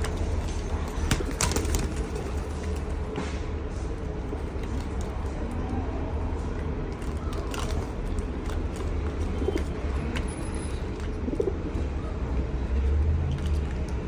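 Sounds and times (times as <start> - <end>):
pigeons cooing: 7.0 - 12.6.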